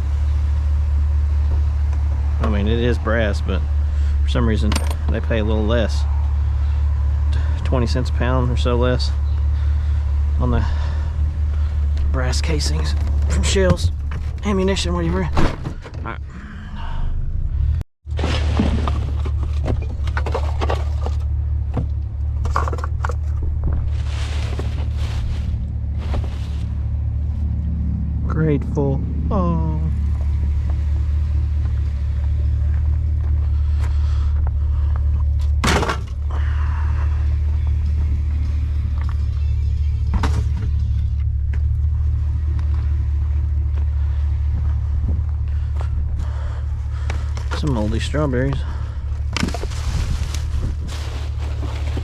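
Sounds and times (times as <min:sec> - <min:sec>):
steady low rumble: 0:00.0 - 0:52.0
rummaging through trash: 0:18.1 - 0:27.0, 0:47.2 - 0:52.0.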